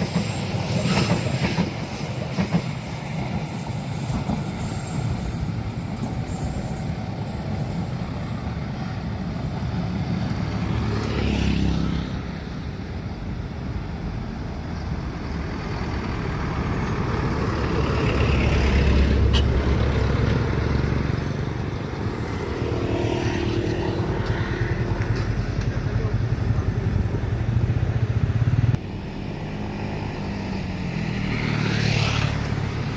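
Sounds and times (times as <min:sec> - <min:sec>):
vehicles driving by: 0:09.0 - 0:32.9
heavy vehicle rumbling: 0:15.2 - 0:22.3.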